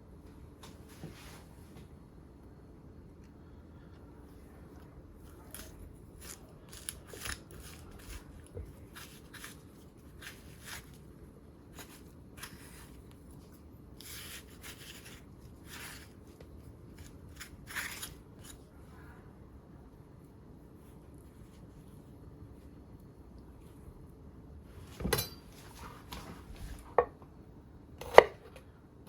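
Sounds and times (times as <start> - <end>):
knife cutting and scraping gourd: 5.2 - 11.1, 11.7 - 18.6, 28.0 - 28.5.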